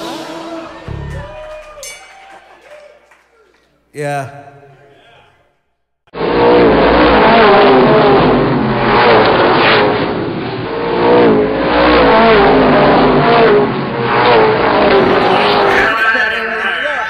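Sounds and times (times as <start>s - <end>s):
racing car engines revving: 6.1s - 17.0s.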